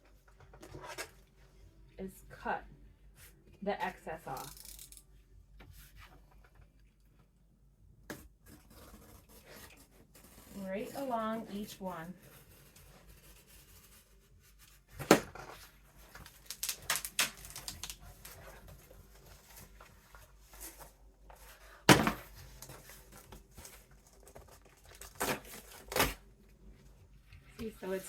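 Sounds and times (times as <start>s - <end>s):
paper crinkling and tearing: 16.0s - 20.9s, 22.4s - 26.3s.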